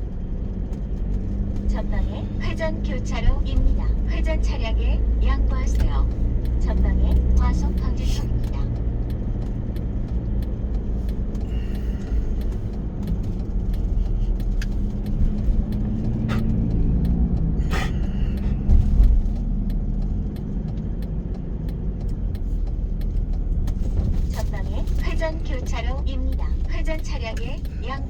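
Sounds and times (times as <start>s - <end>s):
car engine and road rumble: 0.0s - 28.0s
heavy low thump: 17.7s - 19.4s.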